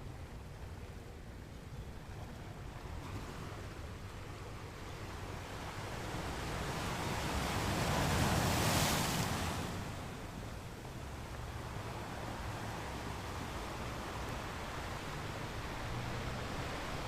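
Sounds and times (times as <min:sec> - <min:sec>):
ocean wave breaking: 0:06.2 - 0:10.4.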